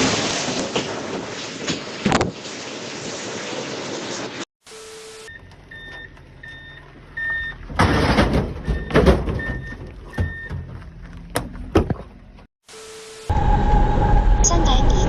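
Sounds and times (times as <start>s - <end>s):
reversing alarm beeping: 4.7s - 8.0s, 8.6s - 10.6s.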